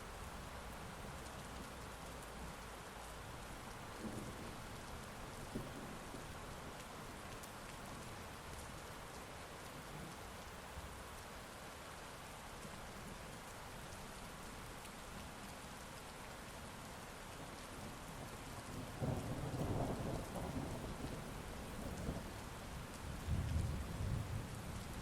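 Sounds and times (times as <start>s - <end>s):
heavy rain: 0.0s - 25.0s.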